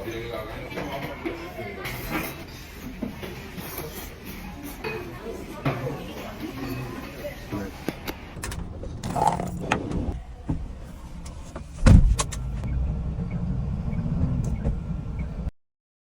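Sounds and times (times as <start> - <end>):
vehicle clicks and knocks: 8.4 - 13.4
low engine rumble: 8.4 - 15.5
heavy thump: 11.5 - 12.4.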